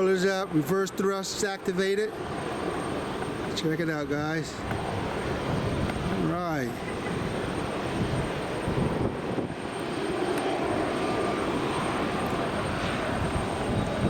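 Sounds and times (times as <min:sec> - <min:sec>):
jet engines in reverse thrust: 0:00.0 - 0:14.0.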